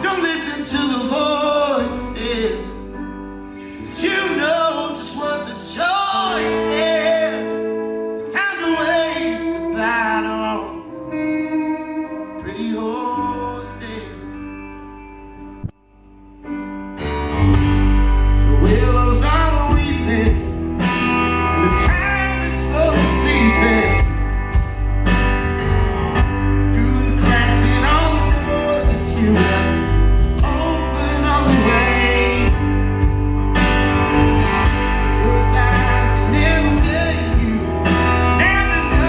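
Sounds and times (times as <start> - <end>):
bending lead guitar melody: 0.0 - 39.0
live rock band playing: 0.0 - 39.0
drums: 17.5 - 39.0.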